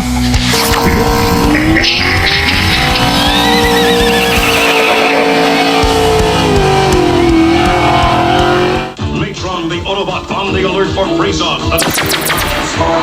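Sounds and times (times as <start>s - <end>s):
racing car engine whine: 0.0s - 9.0s, 9.6s - 13.0s
steady low beat: 0.0s - 12.1s
tyre squeal: 0.3s - 8.8s.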